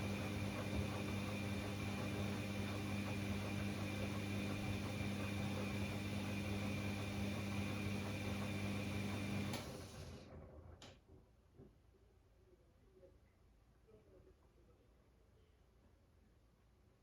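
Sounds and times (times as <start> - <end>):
washing machine drum humming: 0.0 - 10.8.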